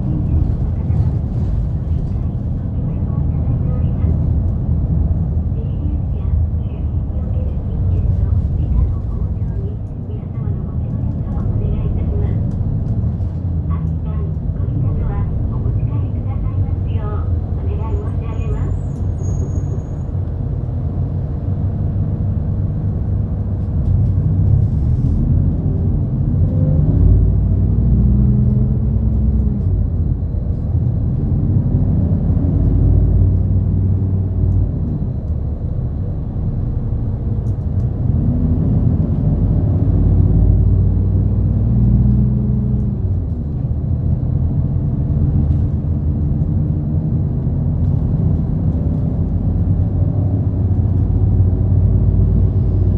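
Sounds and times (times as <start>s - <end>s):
bus engine: 0.0s - 52.9s
road noise: 0.0s - 52.9s.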